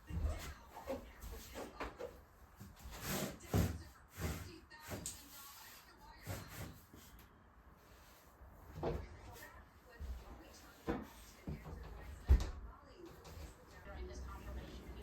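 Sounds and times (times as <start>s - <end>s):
household things knocking and clunking: 0.0s - 5.3s, 8.6s - 9.4s, 10.0s - 13.9s.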